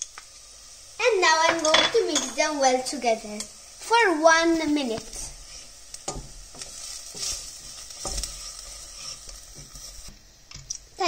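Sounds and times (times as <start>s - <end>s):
onions sizzling in oil: 0.0s - 11.0s
wooden spoon scraping pot: 5.5s - 10.2s.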